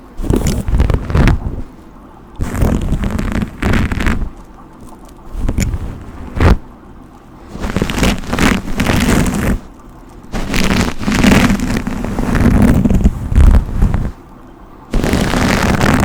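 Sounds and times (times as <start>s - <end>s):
hairbrush swishing through hair: 7.5s - 9.7s, 10.3s - 14.2s, 15.0s - 16.0s.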